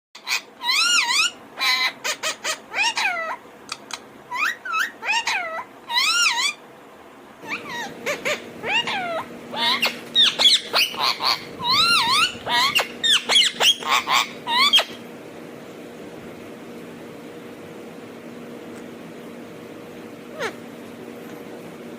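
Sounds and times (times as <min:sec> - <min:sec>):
parrot chattering: 0:00.2 - 0:06.6, 0:07.4 - 0:15.0, 0:20.3 - 0:20.6
steady low hum: 0:00.2 - 0:21.9.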